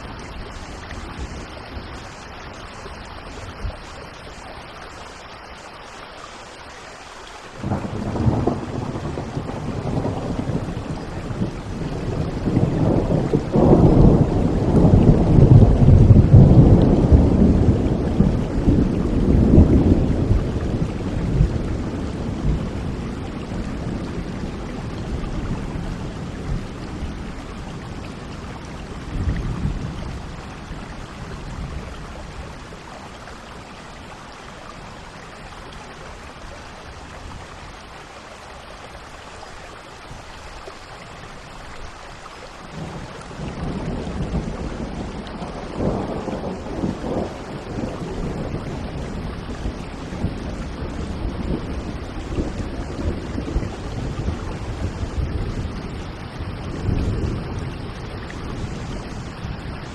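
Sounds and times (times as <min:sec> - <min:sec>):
steady rain: 0:00.0 - 0:59.9
thunder rumbling: 0:07.6 - 0:32.8, 0:42.7 - 0:59.9.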